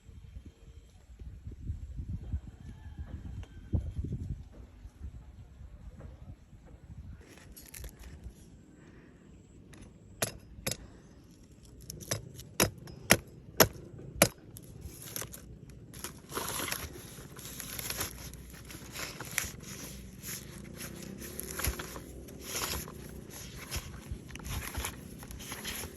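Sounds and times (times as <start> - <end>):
scraping and rustling: 14.6 - 25.9.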